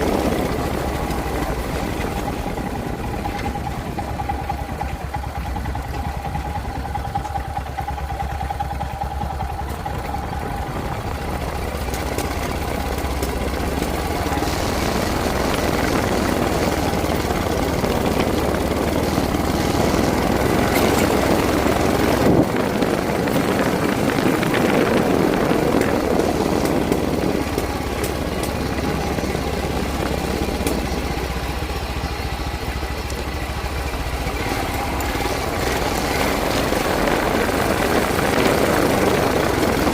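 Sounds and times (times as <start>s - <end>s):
motorcycle engine running: 0.0s - 39.9s
rushing noise: 9.8s - 39.9s.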